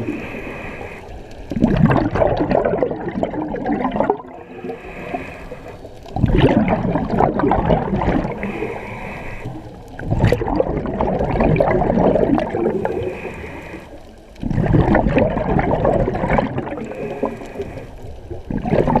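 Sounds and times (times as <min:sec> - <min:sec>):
regulator inhale hiss: 0:00.0 - 0:01.5, 0:04.4 - 0:06.0, 0:08.2 - 0:10.0, 0:12.7 - 0:14.2, 0:16.8 - 0:18.3
exhaled bubbles rushing: 0:00.0 - 0:19.0.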